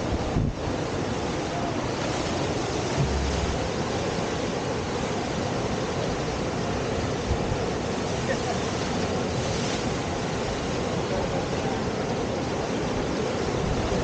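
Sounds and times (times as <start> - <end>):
whitewater rushing: 0.0 - 14.0
low thump: 2.9 - 4.3.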